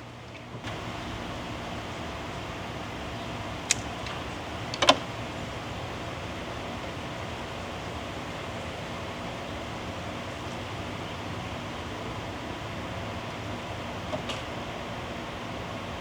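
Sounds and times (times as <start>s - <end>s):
fan-like hiss: 0.0s - 16.0s
hand tool clicks on wire: 3.6s - 5.0s.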